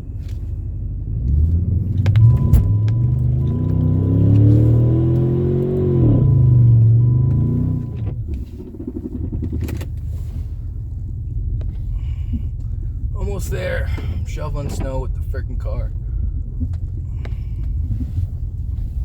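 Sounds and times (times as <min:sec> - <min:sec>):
engine revving hard: 0:01.2 - 0:08.0.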